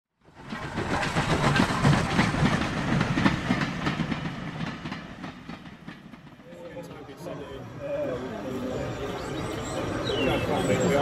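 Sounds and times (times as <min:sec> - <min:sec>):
train wheels clattering: 0:00.3 - 0:07.0.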